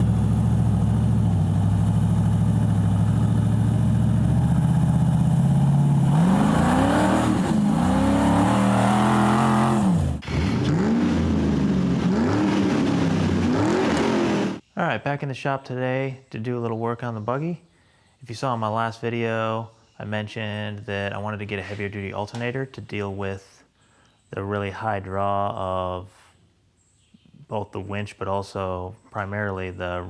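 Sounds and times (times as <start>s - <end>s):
buggy engine revving: 0.0s - 14.6s.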